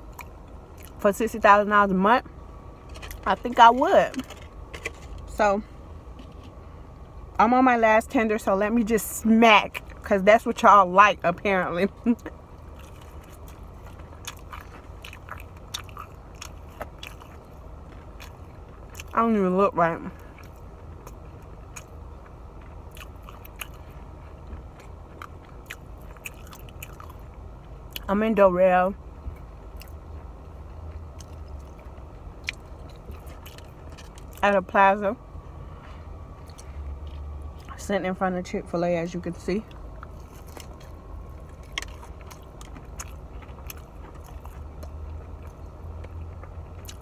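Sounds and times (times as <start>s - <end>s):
chewing with lips smacking: 0.0s - 1.0s, 11.9s - 19.2s, 20.1s - 28.1s, 29.2s - 34.5s, 36.3s - 37.8s, 39.6s - 47.0s
low steady hum: 0.0s - 47.0s.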